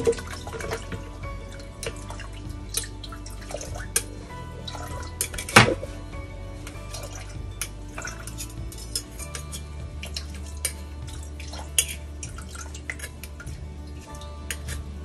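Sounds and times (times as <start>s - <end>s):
spoon scraping metal strainer: 6.7s - 13.4s.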